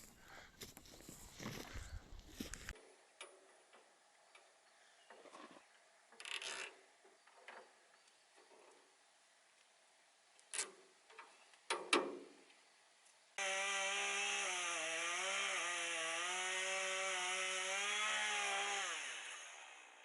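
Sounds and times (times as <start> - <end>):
chainsaw running: 13.4 - 20.0.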